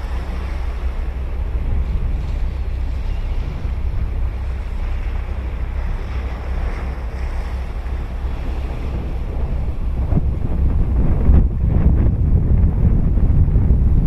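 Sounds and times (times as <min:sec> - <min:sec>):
ocean surf breaking: 0:00.0 - 0:14.0
wind rumbling on microphone: 0:00.0 - 0:14.0.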